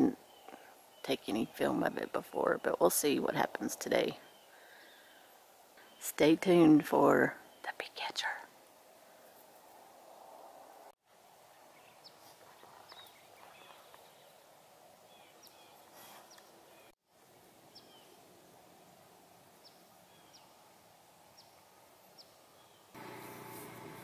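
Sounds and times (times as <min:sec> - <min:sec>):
birds chirping: 0:11.5 - 0:17.0.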